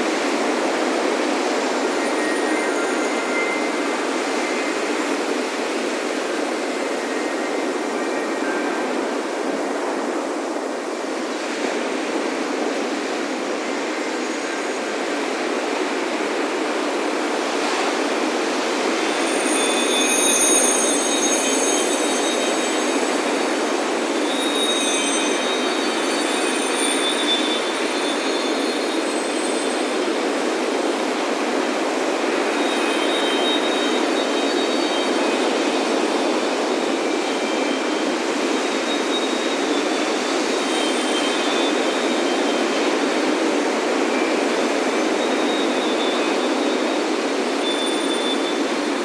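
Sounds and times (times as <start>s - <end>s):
ocean surf on a beach: 0.0s - 49.0s
metal wind chimes ringing: 18.9s - 30.5s.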